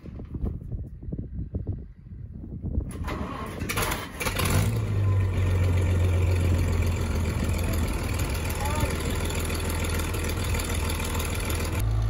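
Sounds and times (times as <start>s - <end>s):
tractor engine starting and running: 2.8s - 12.0s.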